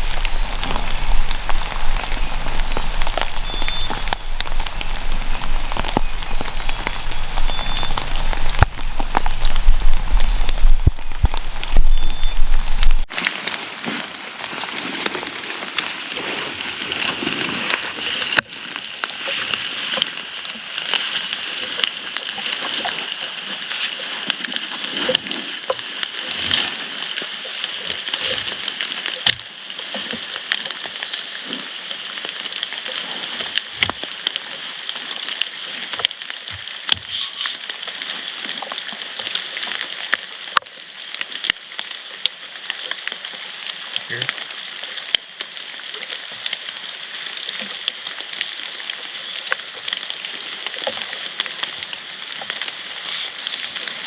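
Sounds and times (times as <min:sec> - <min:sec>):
raindrops ticking close by: 0:00.0 - 0:13.1, 0:32.1 - 0:54.0
steady rain hiss: 0:00.0 - 0:13.1, 0:34.0 - 0:54.0.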